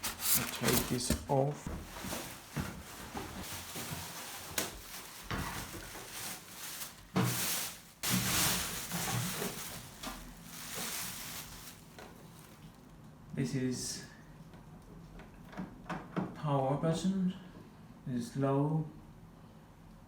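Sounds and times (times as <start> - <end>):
packaging rustling and scraping: 0.0 - 12.9.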